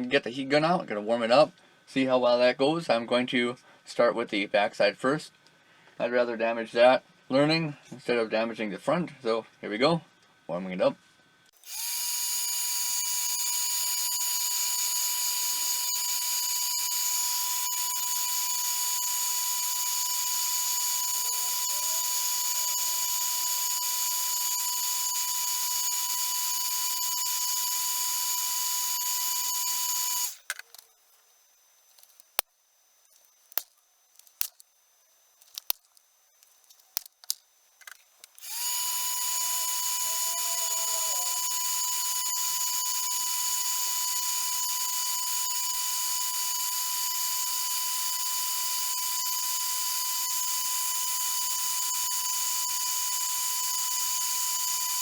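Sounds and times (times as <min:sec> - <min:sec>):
heat gun blowing whine: 0:11.6 - 0:30.6, 0:38.3 - 0:55.0.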